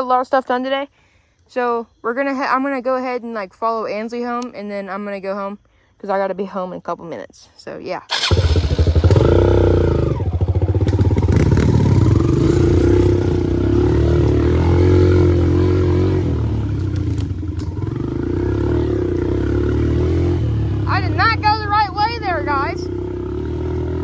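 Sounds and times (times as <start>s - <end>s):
dirt bike engine revving: 8.1s - 24.0s.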